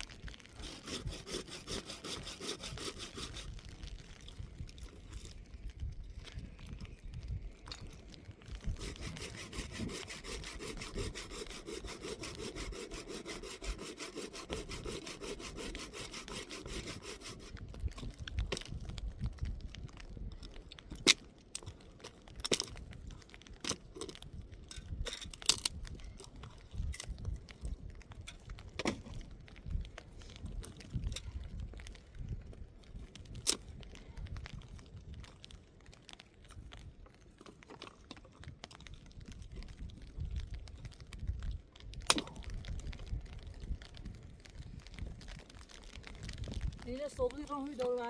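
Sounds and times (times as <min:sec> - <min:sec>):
tool rasping a hard surface: 0:00.3 - 0:03.7, 0:08.6 - 0:17.7.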